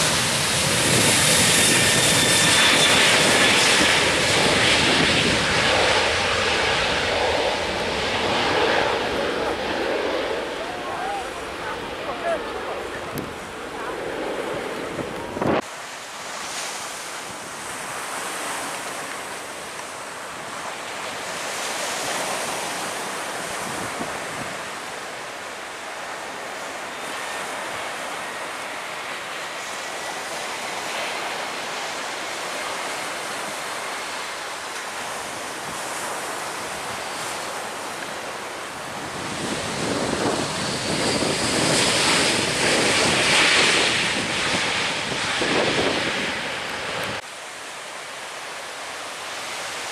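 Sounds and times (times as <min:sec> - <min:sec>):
wind buffeting microphone: 0:00.0 - 0:15.7, 0:23.4 - 0:24.8, 0:38.7 - 0:47.2.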